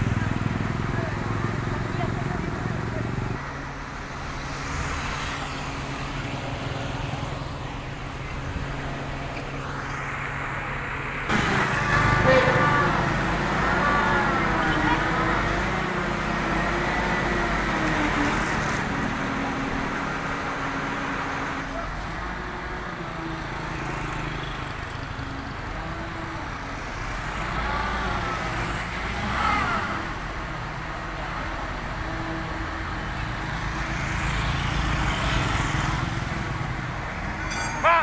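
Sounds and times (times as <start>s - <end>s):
people talking: 0.0s - 3.4s, 11.3s - 16.0s, 37.5s - 38.0s
road traffic engines: 0.0s - 38.0s.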